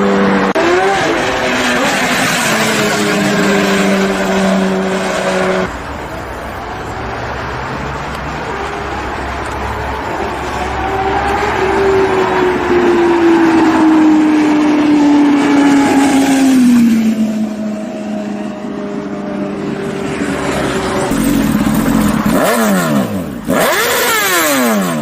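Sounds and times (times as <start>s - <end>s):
motorcycle engines revving past: 9.4s - 25.0s.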